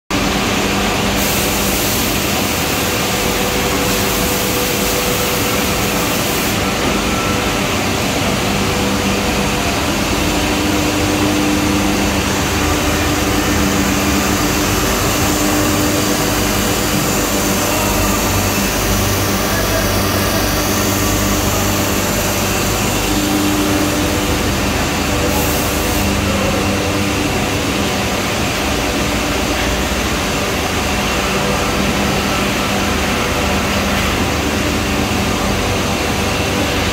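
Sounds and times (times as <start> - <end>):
cnc machine running: 0.1 - 36.9.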